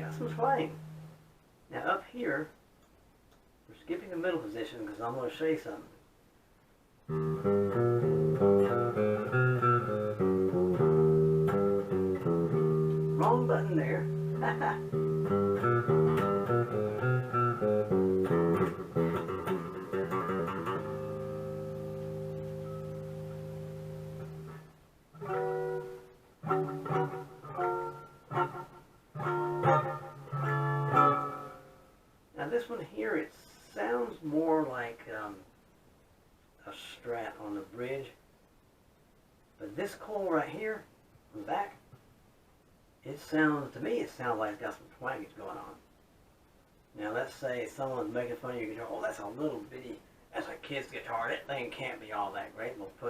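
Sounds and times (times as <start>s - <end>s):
electric guitar blues riff: 0.0s - 1.3s, 7.1s - 32.0s.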